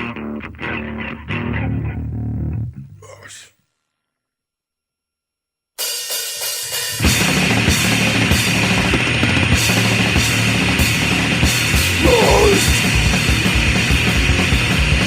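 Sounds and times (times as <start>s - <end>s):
punk band playing: 6.6s - 15.0s.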